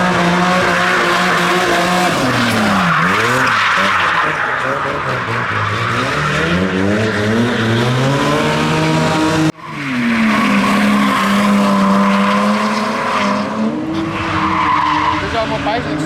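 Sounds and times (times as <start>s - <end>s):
car engine revving: 0.0s - 16.0s
tyres squealing and skidding: 0.0s - 16.0s.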